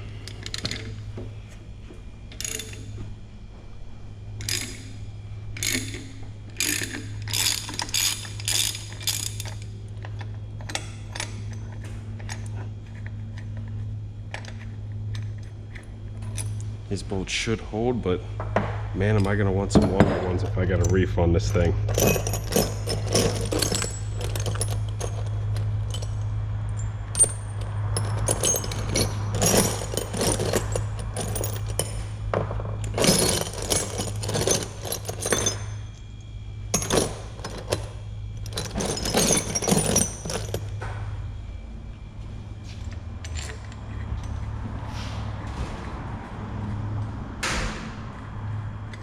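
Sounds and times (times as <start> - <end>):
low steady hum: 0.0 - 49.0
metal hand tools clinking: 21.9 - 26.2, 26.8 - 32.0, 32.8 - 35.8, 36.8 - 40.7.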